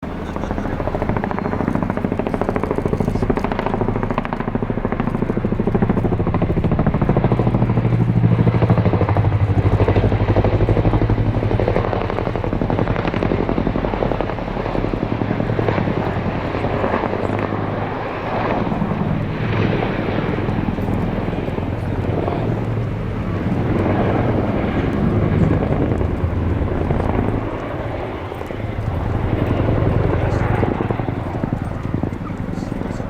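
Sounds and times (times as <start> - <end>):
low engine drone: 0.0 - 4.0, 16.2 - 33.0
helicopter rotor chop: 0.0 - 33.0.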